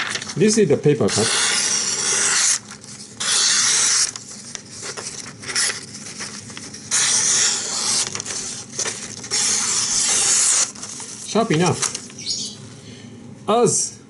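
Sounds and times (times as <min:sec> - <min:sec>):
knife slicing paper: 0:01.2 - 0:12.0.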